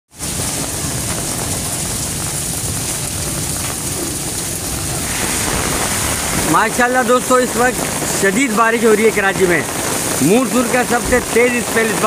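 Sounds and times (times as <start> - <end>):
heavy rain pouring: 0.1 - 12.0.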